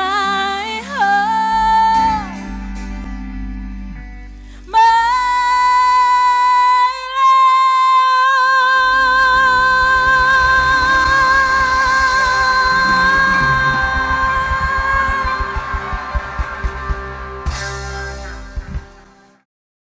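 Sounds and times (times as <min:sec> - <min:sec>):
woman singing long high note: 0:04.7 - 0:16.6
backing track: 0:08.4 - 0:19.4
pulsing beat: 0:09.2 - 0:19.3.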